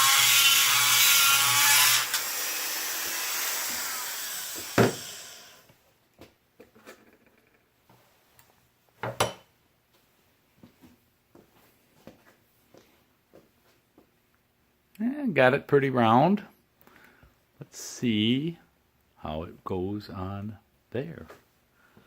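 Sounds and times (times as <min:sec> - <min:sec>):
power tool grinding metal: 0:00.0 - 0:05.6
sharp knock: 0:04.8 - 0:05.1.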